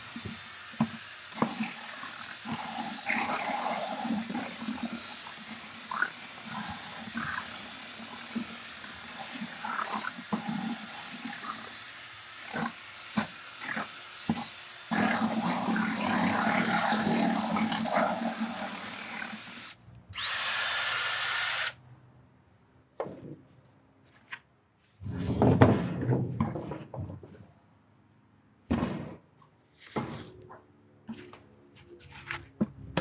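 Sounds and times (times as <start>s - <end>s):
power drill running: 0.0s - 21.8s.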